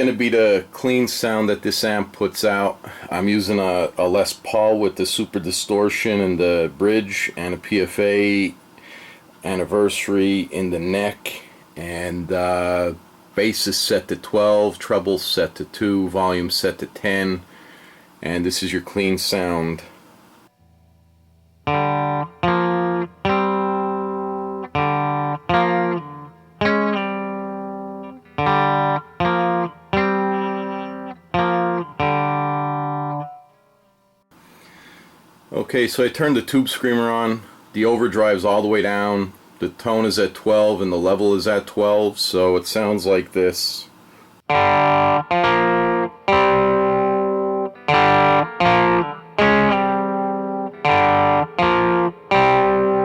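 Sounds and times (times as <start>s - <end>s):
overdriven electric guitar chords: 20.6s - 35.0s, 44.5s - 53.0s.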